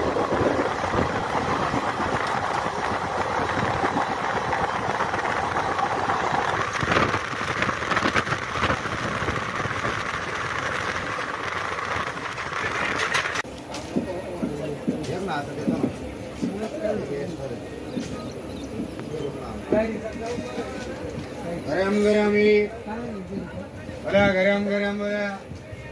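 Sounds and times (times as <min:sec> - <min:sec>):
sharp clacks and clatter: 0:00.0 - 0:16.9
train wheels rumbling on rails: 0:00.0 - 0:25.9.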